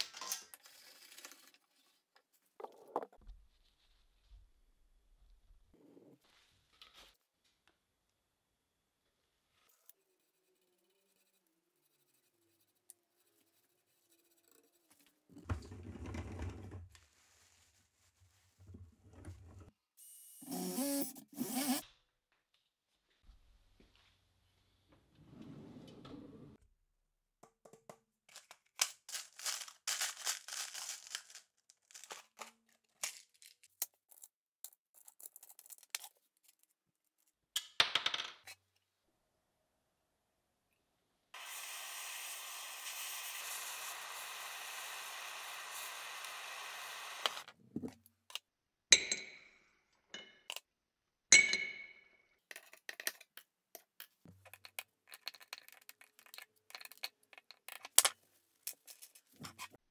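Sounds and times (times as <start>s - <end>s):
gas torch flame hissing: 41.4s - 47.4s.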